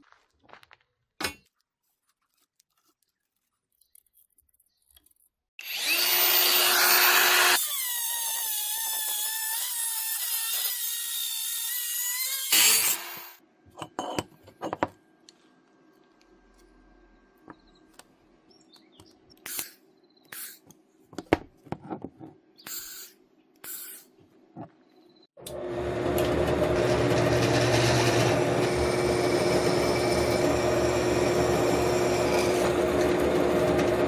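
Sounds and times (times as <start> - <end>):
electric drill whining: 5.6 - 13.3, 25.4 - 34.0.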